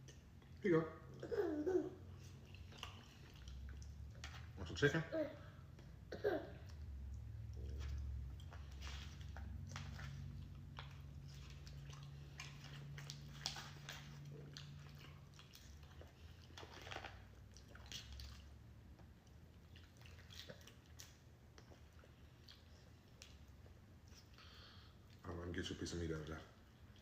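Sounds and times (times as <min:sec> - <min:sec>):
wet chewing and mouth smacks: 0:02.2 - 0:04.6, 0:06.6 - 0:25.3.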